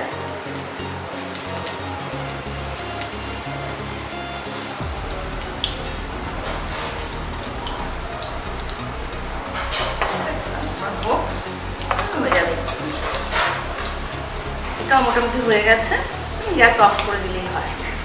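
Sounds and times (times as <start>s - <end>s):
fritters sizzling in hot oil: 0.0s - 18.0s.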